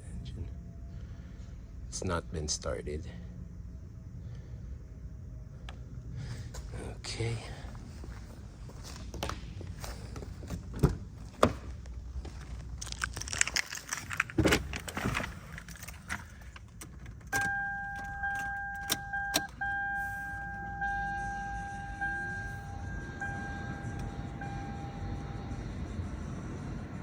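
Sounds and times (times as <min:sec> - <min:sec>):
car keys jangling: 0:12.3 - 0:19.7
car electronic warning chime: 0:17.3 - 0:26.1.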